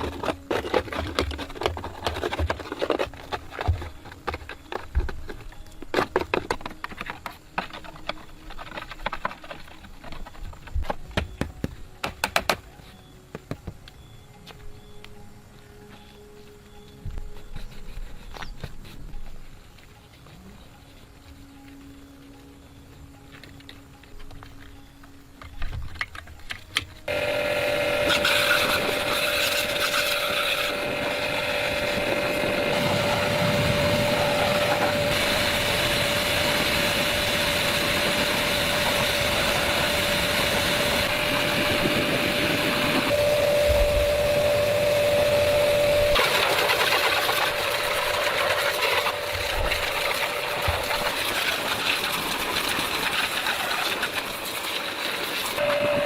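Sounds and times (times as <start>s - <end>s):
motor whining: 27.1s - 51.7s, 55.6s - 56.0s.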